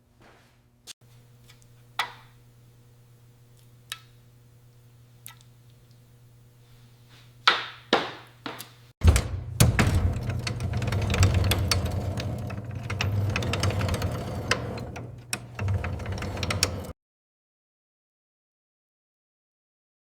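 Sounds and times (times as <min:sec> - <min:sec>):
machine humming and rattling: 0:09.0 - 0:16.9
sharp knocks: 0:09.0 - 0:16.9.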